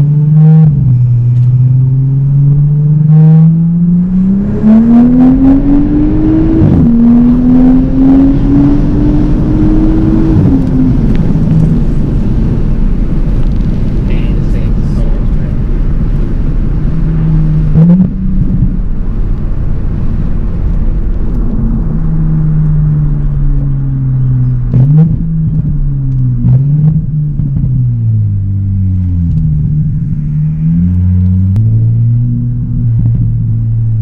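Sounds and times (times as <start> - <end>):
car exhaust accelerating: 0.0 - 34.0
exhaust cracks at gear shifts: 8.7 - 34.0.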